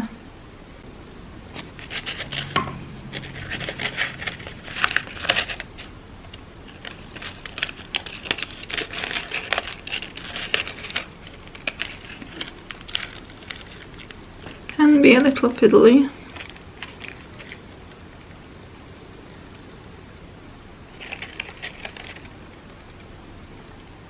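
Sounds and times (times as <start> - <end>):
crepe paper crinkling and rustling: 1.5 - 14.7, 16.3 - 18.4, 20.9 - 23.2.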